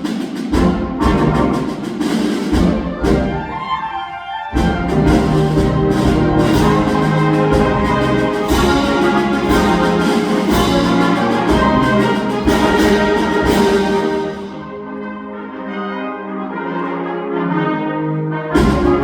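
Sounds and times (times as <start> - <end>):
percussion strikes: 0.0 - 3.8, 4.5 - 14.8, 18.6 - 19.0
concert band playing: 0.0 - 15.2, 18.5 - 19.0.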